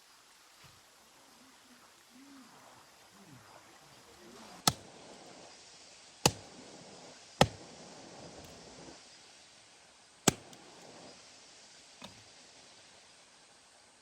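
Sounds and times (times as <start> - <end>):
rain hissing: 0.0 - 13.8
blade chopping into wood: 4.6 - 4.8, 6.2 - 6.5, 7.4 - 7.6, 10.3 - 10.6.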